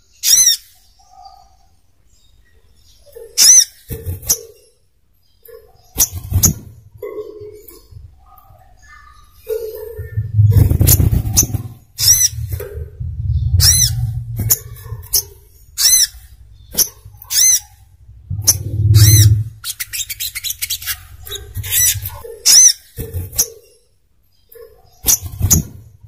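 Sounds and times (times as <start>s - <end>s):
bird high chirps: 0.0s - 26.0s
low rumble: 9.8s - 17.2s, 17.9s - 19.6s.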